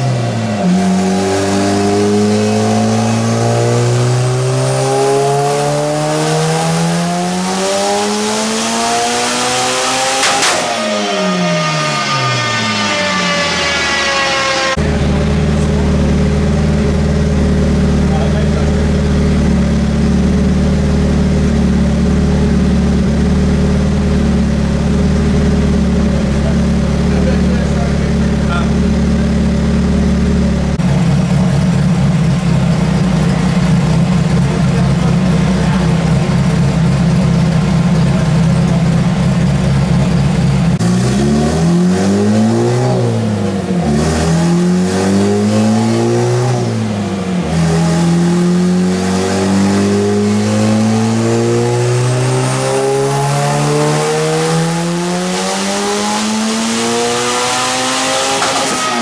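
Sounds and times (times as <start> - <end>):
car engine revving: 0.0 - 59.0
rising whistle: 10.8 - 14.8.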